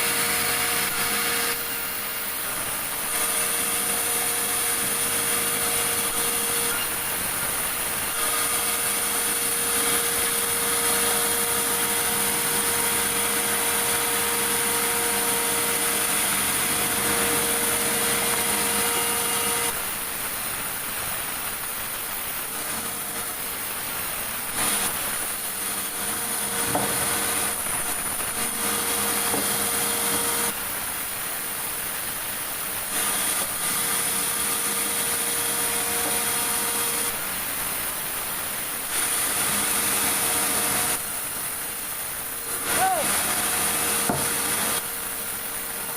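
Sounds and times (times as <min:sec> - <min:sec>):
sawmill machine hum: 0:00.0 - 0:45.9
saw blade rasping through wood: 0:24.6 - 0:30.6, 0:42.6 - 0:44.8.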